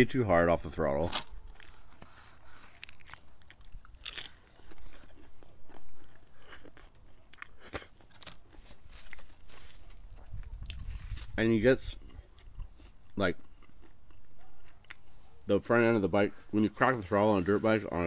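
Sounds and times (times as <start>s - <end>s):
chewing crispy fried food: 1.1s - 15.5s.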